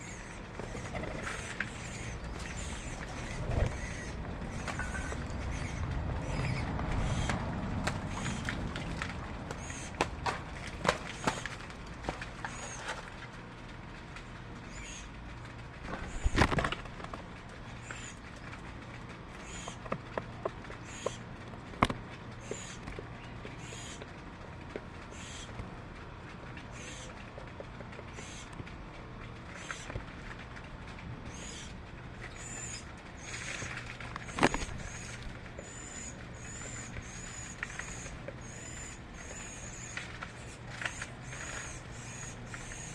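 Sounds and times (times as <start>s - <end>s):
sharp clicks and knocks: 19.7s - 24.9s.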